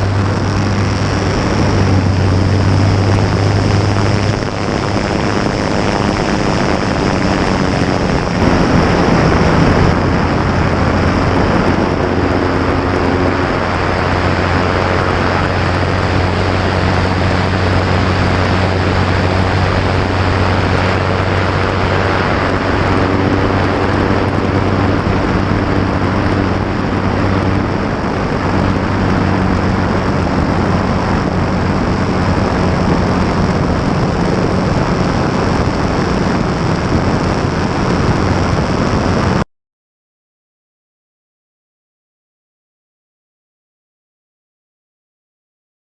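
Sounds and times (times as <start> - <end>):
aircraft piston engine and propeller: 0.0 - 39.4
airflow rush: 0.0 - 39.4.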